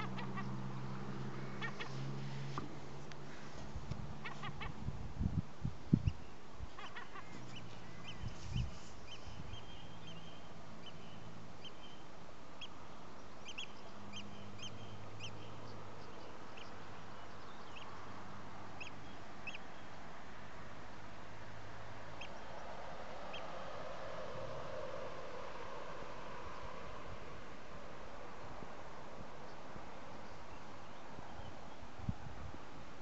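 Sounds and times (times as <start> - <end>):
birds calling: 0.0 - 4.9, 5.9 - 20.0
wind: 0.0 - 33.0.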